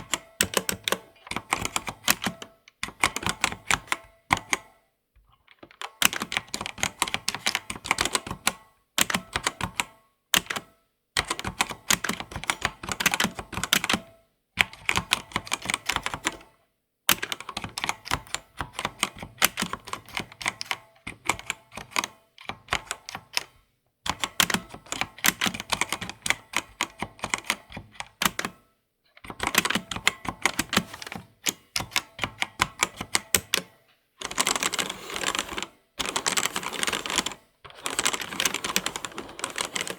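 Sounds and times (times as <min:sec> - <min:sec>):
keyboard typing clicks: 0:00.0 - 0:04.7, 0:29.2 - 0:39.9.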